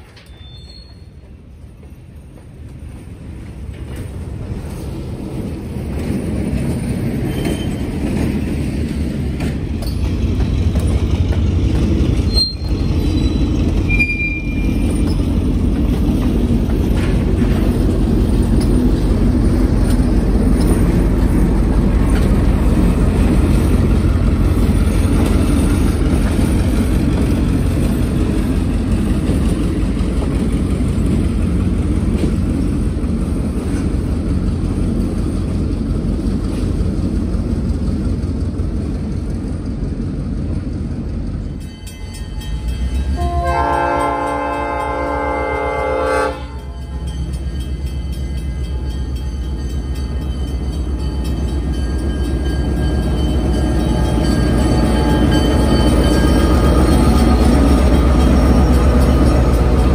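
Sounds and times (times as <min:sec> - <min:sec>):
freight train rumbling past: 0:00.0 - 0:59.9
high wheel squeals: 0:00.1 - 0:01.4, 0:07.2 - 0:08.6, 0:12.1 - 0:15.6, 0:46.8 - 0:59.9.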